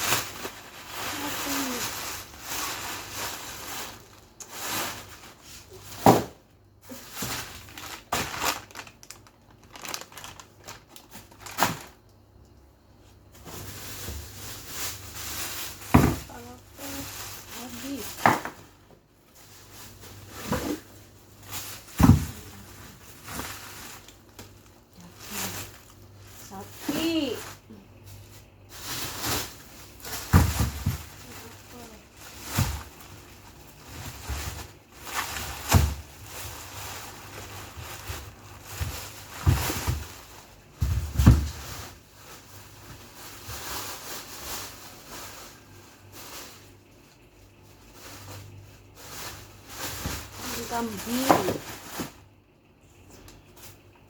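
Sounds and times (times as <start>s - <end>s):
frozen food packages knocking: 0.0s - 12.1s, 13.4s - 18.9s, 21.5s - 24.6s, 29.0s - 41.9s, 49.9s - 52.2s
plastic rustling: 0.0s - 54.0s.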